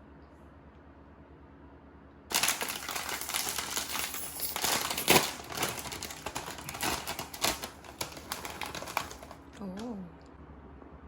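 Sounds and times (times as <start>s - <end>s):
crinkling and crumpling: 2.3s - 9.9s.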